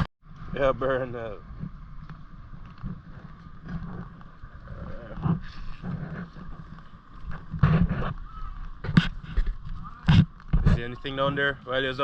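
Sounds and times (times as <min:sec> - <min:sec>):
wind on microphone: 0:00.0 - 0:12.0
indistinct voices: 0:04.5 - 0:06.6.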